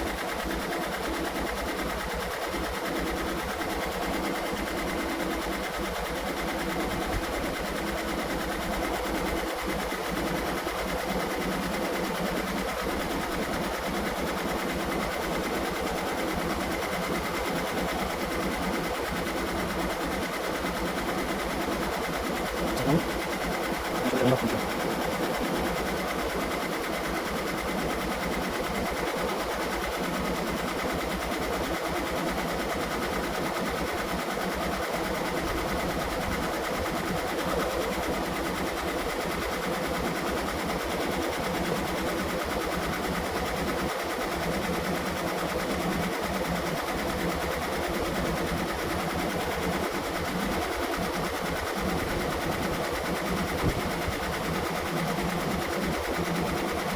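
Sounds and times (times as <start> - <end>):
air conditioning running: 22.7 - 23.2, 23.9 - 25.0.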